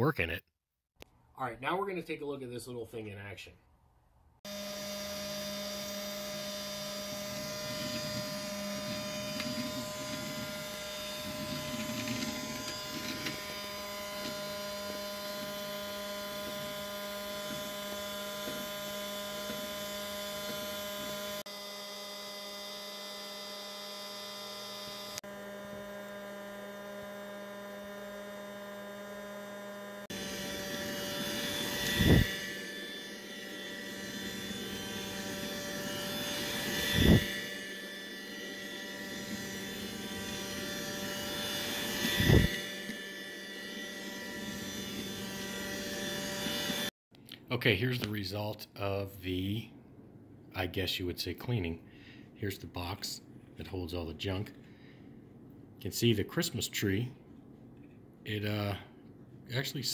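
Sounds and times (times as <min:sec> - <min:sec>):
robot vacuum motor hum: 0:04.5 - 0:46.9.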